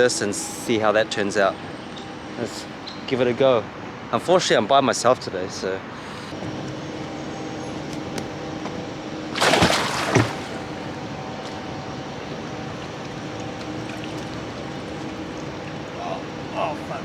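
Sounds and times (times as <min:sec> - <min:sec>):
faint hum: 0:00.0 - 0:17.0
boat splashing into water: 0:09.2 - 0:16.5
trickling water: 0:09.4 - 0:11.1, 0:12.4 - 0:16.8.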